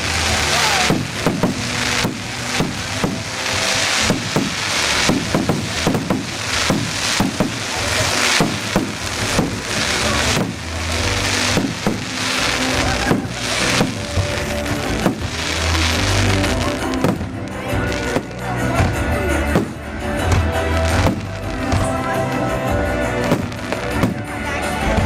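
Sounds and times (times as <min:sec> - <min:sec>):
constant hiss: 0:00.0 - 0:18.6
fireworks bangs and crackling: 0:00.0 - 0:25.0
steady musical tones: 0:00.0 - 0:25.0.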